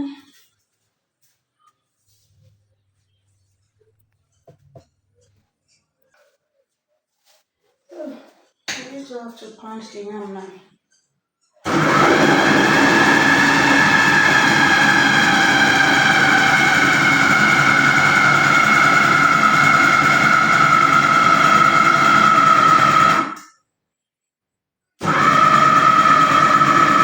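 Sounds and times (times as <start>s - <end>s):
electric pounder motor whining: 11.7s - 23.4s, 25.0s - 27.0s.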